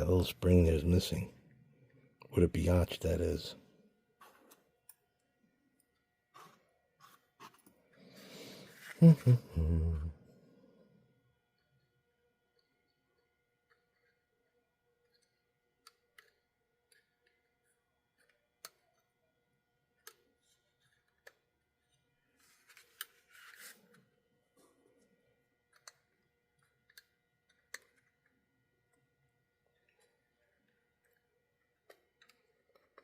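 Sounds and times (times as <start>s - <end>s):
small tools clicking and tapping: 15.0s - 19.2s, 25.7s - 29.1s, 29.7s - 33.0s.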